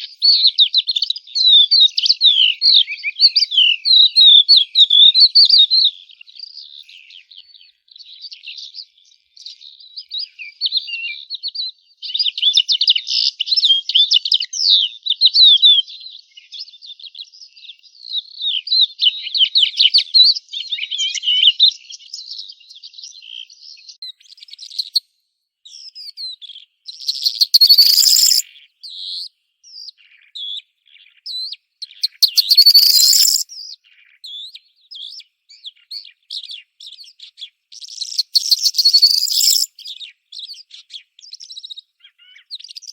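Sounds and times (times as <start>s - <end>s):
songbirds chirping: 0.0s - 19.4s, 20.0s - 42.9s
harsh bird chatter: 24.4s - 25.0s, 27.0s - 28.4s, 31.8s - 33.6s, 37.8s - 40.0s.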